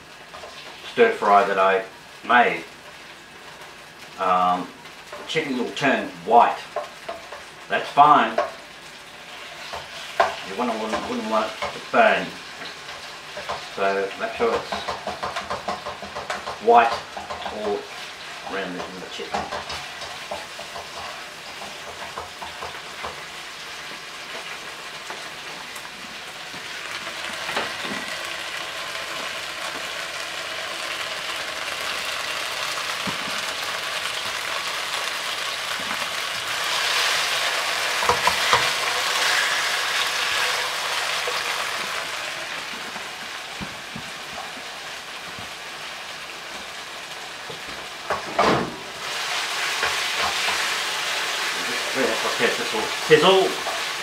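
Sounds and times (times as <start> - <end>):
chicken sizzling in frying pan: 0.0 - 54.0
utensil knocking against pan: 14.5 - 17.6, 19.3 - 21.0.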